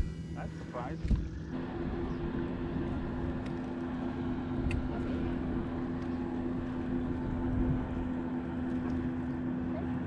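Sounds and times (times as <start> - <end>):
boat motor humming: 0.0 - 10.0.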